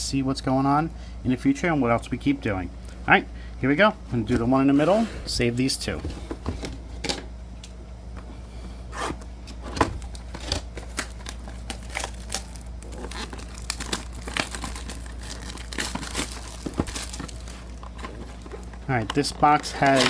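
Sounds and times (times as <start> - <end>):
shrink-wrap crackling and tearing: 10.0 - 20.0.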